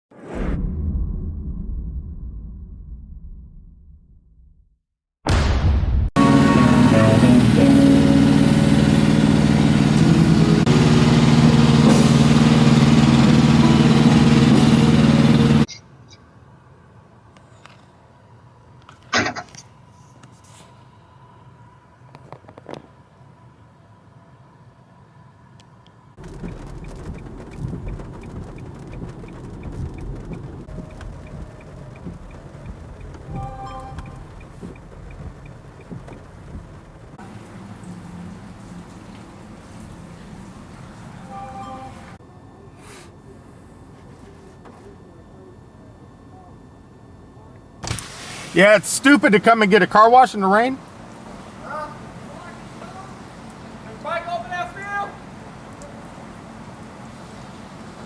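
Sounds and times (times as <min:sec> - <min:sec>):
short electronic tone: 0:06.2 - 0:08.9, 0:33.3 - 0:34.3, 0:41.2 - 0:42.2
truck diesel engine idling: 0:06.2 - 0:15.7
faint regular ticking: 0:26.2 - 0:37.2
water drumming on a car: 0:26.2 - 0:39.8.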